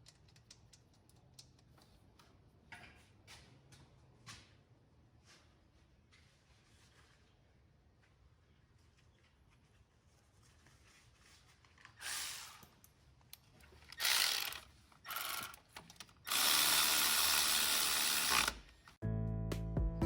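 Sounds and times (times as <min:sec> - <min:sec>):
power tool driving bolts: 0:13.9 - 0:18.9
guitar music: 0:19.0 - 0:20.0.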